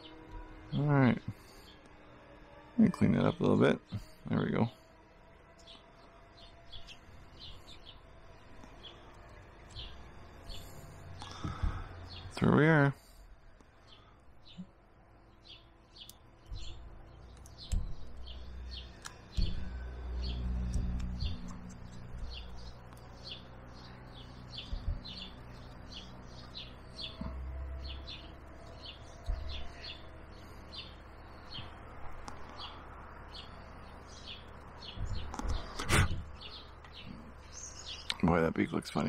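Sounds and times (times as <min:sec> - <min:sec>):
bird chirping: 0:02.6 - 0:39.0.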